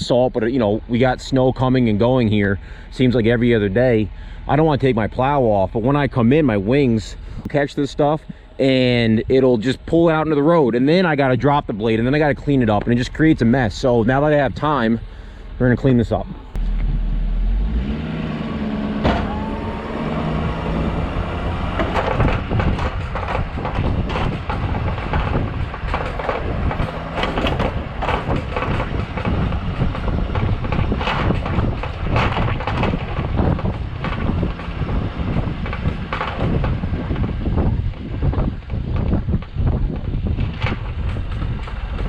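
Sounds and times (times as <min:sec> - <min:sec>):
truck engine running: 0:00.0 - 0:42.0
rising whine: 0:16.2 - 0:31.6
plow scraping snow and ice: 0:16.6 - 0:37.6.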